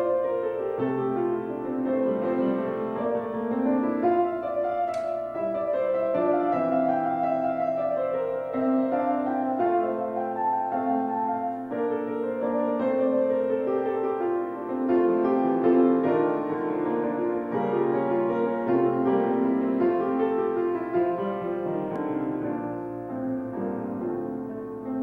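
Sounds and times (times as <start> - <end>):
slow piano chords: 0.0 - 25.0
sharp click: 4.9 - 5.2.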